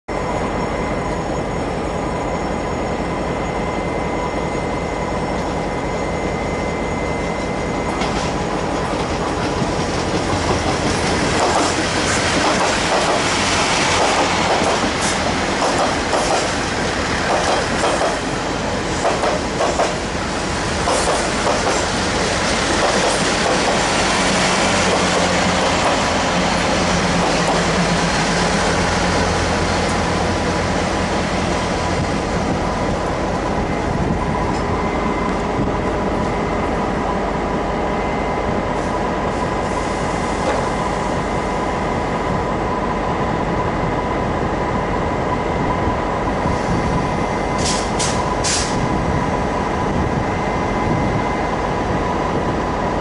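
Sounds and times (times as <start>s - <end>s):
diesel train whine: 0.1s - 53.0s
train wheels clattering on rail joints: 7.3s - 20.1s, 20.8s - 26.4s, 27.0s - 27.8s, 47.5s - 48.9s.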